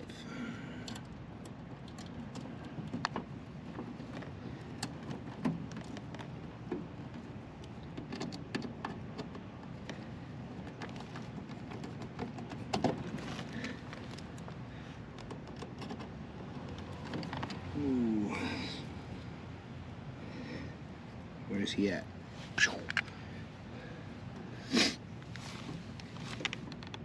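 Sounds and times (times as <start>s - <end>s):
tools and connectors clicking: 0.8s - 3.2s.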